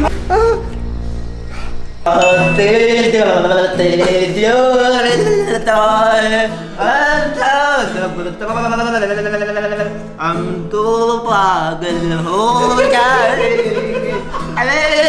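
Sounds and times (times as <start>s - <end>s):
instrumental backing music: 0.0s - 6.9s
man singing long held notes: 2.0s - 15.0s.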